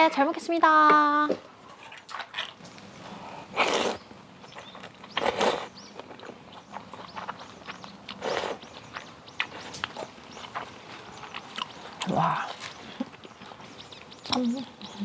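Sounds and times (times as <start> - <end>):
loud noodle slurps: 3.5 - 4.0, 5.2 - 5.7, 8.1 - 8.6.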